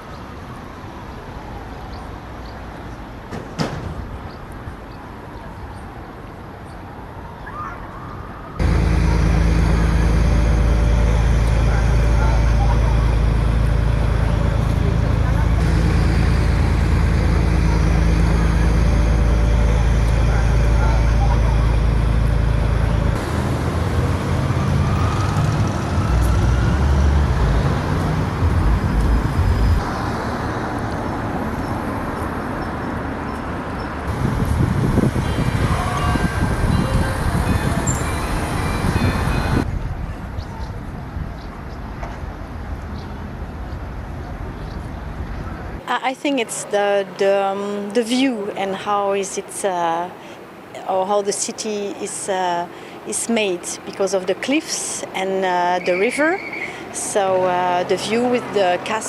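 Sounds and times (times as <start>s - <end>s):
road traffic rumble: 0.0s - 59.0s
low engine drone: 8.6s - 32.2s.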